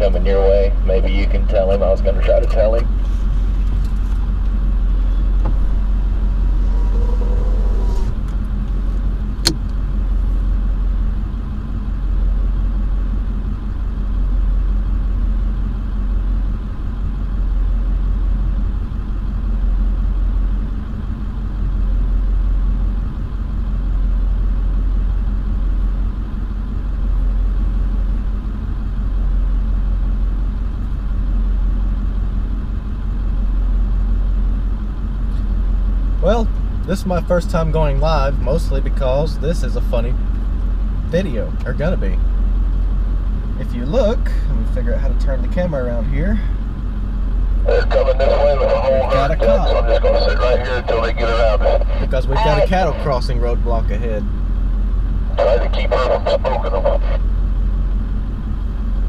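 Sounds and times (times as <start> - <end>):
truck engine idling: 0.0 - 59.0
sharp click: 9.4 - 9.8.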